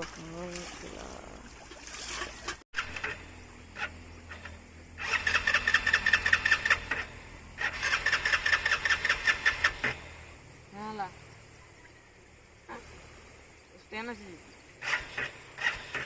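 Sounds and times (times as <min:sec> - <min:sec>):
motorcycle engine cranking: 0:02.0 - 0:10.2, 0:14.8 - 0:16.0.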